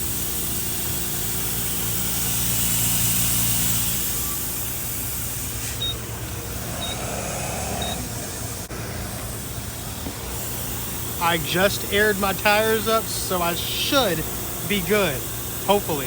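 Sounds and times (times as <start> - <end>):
air compressor humming and hissing: 0.0 - 16.0
short high beeps: 6.8 - 7.0.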